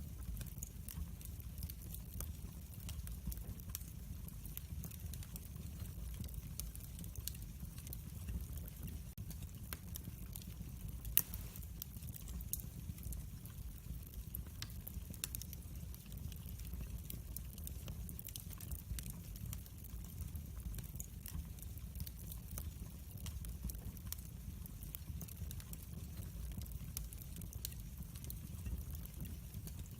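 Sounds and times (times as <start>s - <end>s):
low rumble of flames: 0.0s - 29.9s
wood fire crackling: 0.0s - 29.9s
fire pops: 11.0s - 13.2s.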